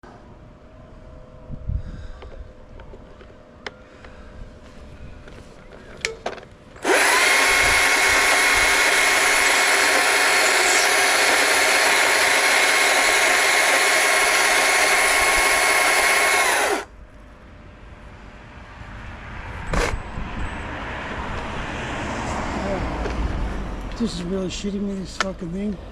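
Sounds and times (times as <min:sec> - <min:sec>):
chainsaw running: 0:06.8 - 0:16.9.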